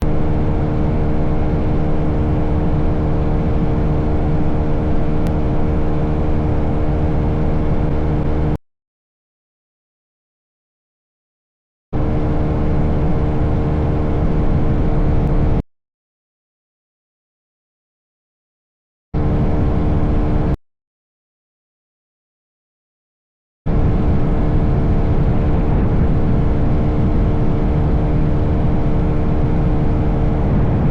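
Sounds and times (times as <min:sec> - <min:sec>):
motorcycle engine running: 0:00.0 - 0:08.6, 0:23.7 - 0:30.9
wind rumble: 0:00.0 - 0:08.6, 0:12.0 - 0:15.6, 0:23.7 - 0:30.9.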